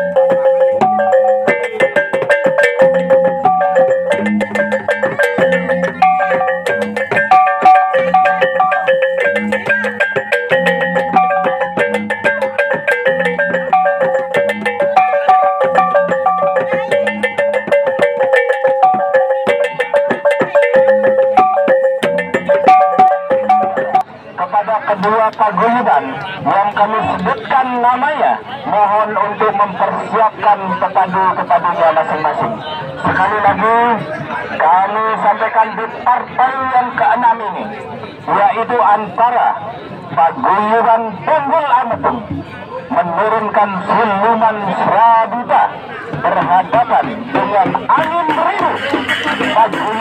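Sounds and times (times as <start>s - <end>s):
gamelan music: 0.0s - 24.1s, 46.0s - 50.0s.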